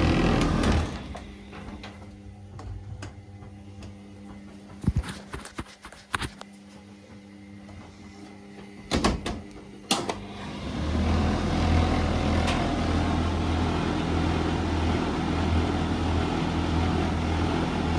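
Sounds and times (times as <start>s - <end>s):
washing machine humming: 0.0s - 5.5s, 6.6s - 17.9s
machine loud low drone with rushing: 11.0s - 17.9s.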